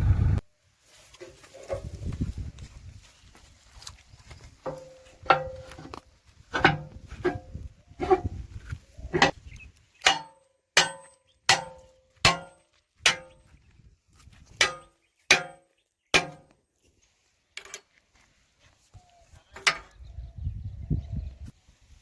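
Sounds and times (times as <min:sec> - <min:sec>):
metal clanking: 0:04.6 - 0:08.3, 0:10.0 - 0:13.4, 0:14.6 - 0:16.5.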